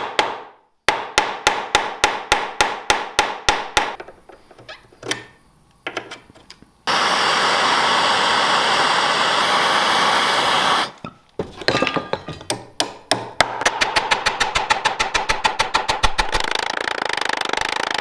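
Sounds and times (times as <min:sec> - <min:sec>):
power tool running: 0:06.9 - 0:11.0.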